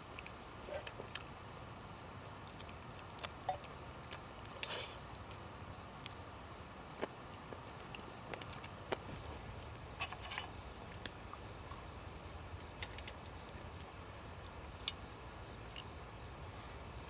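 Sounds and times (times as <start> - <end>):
faint steady background noise: 0.0 - 17.0
sharp clicks and pops: 12.6 - 14.0.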